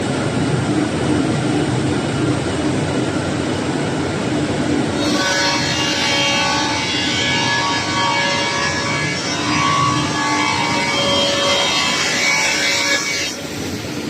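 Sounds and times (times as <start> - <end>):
high-pitched whining tones: 4.9 - 14.0
wood sanding machine running: 5.0 - 14.0.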